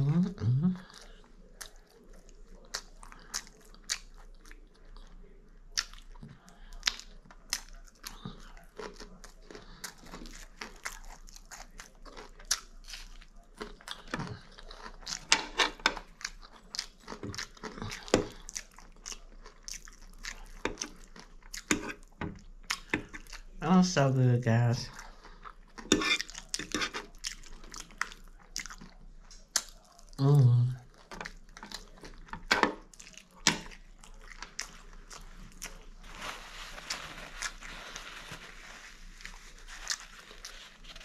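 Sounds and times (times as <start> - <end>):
person chewing with crunches: 0.0 - 23.6, 24.9 - 41.0.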